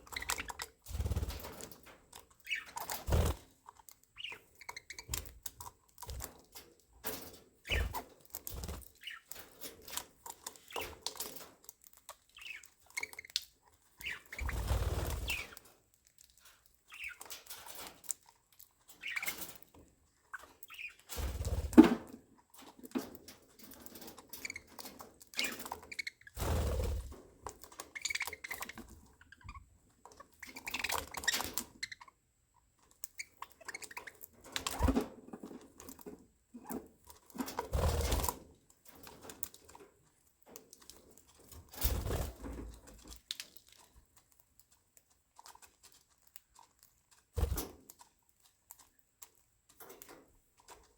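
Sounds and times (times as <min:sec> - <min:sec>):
budgerigars chirping and chattering: 0:00.0 - 0:03.5, 0:04.1 - 0:06.3, 0:07.6 - 0:09.5, 0:10.2 - 0:11.4, 0:12.1 - 0:15.8, 0:16.8 - 0:18.1, 0:18.9 - 0:19.6, 0:20.3 - 0:21.1, 0:24.0 - 0:26.4, 0:27.7 - 0:32.2, 0:33.0 - 0:35.0
wings flapping: 0:00.2 - 0:01.8, 0:02.5 - 0:03.5, 0:14.0 - 0:15.6, 0:25.5 - 0:27.2, 0:37.5 - 0:38.4.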